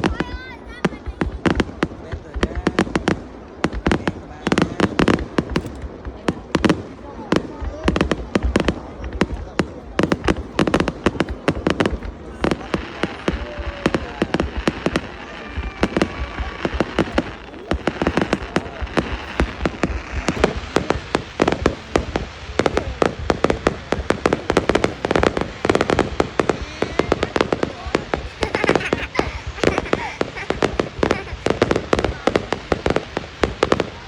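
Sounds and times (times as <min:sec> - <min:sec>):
fireworks banging and crackling: 0:00.0 - 0:34.0.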